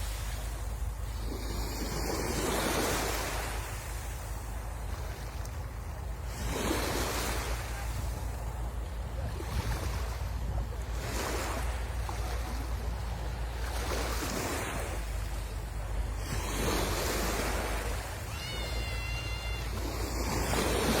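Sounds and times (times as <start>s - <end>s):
wind rumbling on microphone: 0.0s - 18.1s
sea waves washing in: 0.0s - 21.0s
brief high tone: 18.3s - 20.0s.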